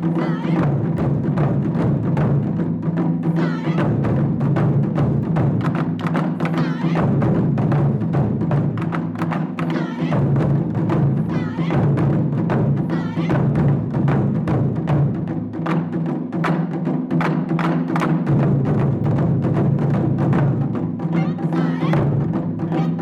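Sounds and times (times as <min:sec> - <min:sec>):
taiko drum ensemble playing: 0:00.0 - 0:23.0.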